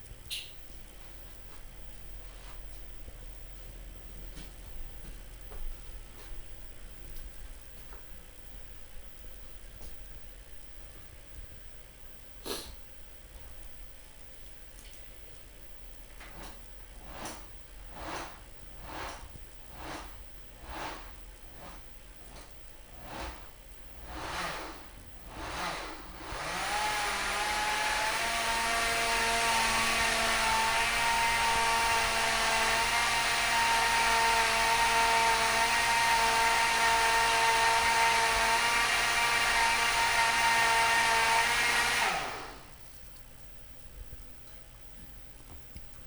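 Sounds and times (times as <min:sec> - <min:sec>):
small motor whining: 0:23.0 - 0:23.4, 0:24.0 - 0:42.7.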